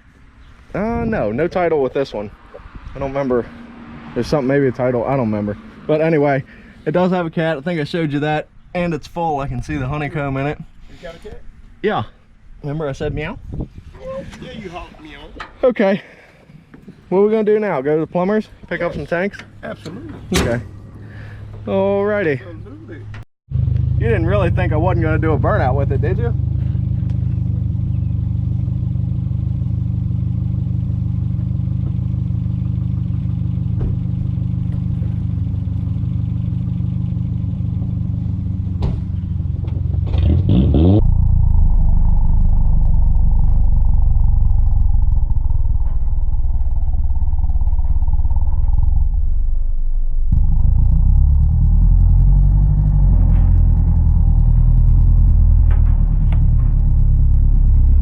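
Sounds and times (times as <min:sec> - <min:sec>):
pickup truck engine revving: 0:37.1 - 0:58.0.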